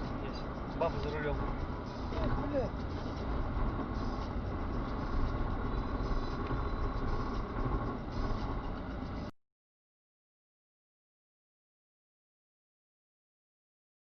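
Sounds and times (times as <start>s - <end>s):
car driving rumble: 0.0s - 9.3s.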